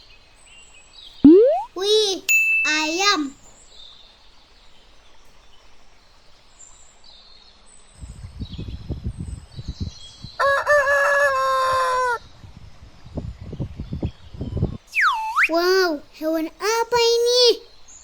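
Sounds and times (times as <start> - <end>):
faint bird chirps: 0.0 - 3.9, 14.9 - 18.0
rooster crowing: 10.4 - 12.2.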